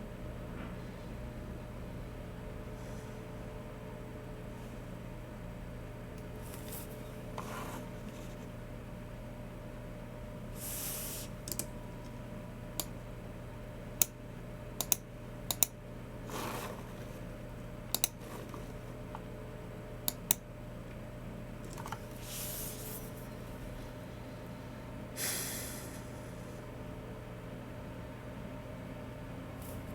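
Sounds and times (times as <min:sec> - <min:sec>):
steady low hum: 0:00.0 - 0:29.9
keyboard and mouse clicks: 0:11.5 - 0:11.7, 0:14.8 - 0:15.8, 0:17.9 - 0:18.2.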